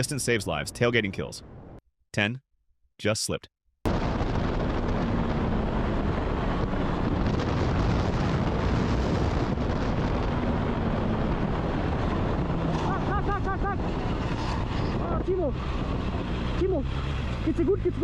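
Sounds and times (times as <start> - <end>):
wind rush on microphone: 3.9 - 18.0.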